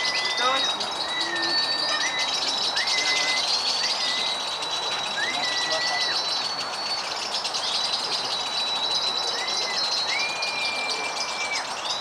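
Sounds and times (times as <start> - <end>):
lovebirds chattering: 0.0 - 7.0
high whistled bird notes: 0.0 - 7.1, 8.5 - 11.8.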